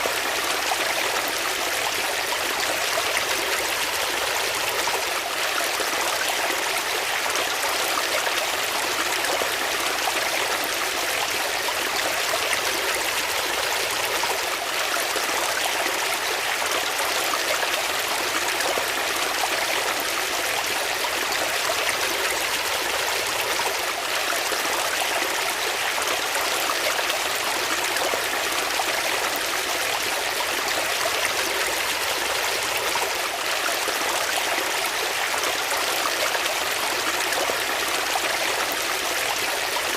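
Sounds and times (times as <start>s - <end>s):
water flowing steadily: 0.0s - 39.9s.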